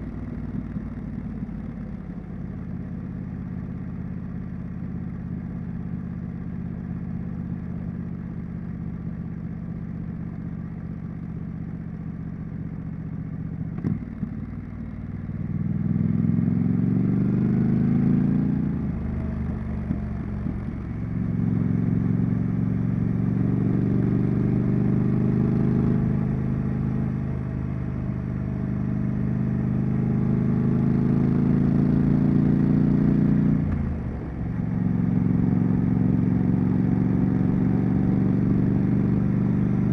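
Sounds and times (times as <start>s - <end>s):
motorcycle engine revving: 15.6s - 39.9s.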